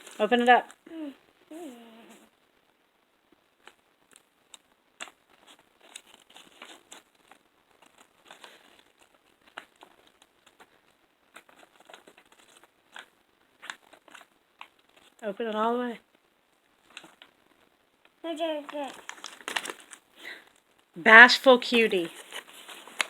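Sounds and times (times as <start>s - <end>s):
plastic packaging crinkling: 3.6s - 15.2s, 18.6s - 21.0s, 22.0s - 23.0s.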